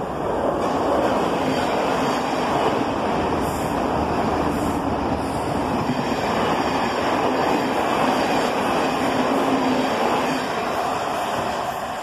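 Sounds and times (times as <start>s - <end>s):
trains rumbling past: 0.0s - 12.0s.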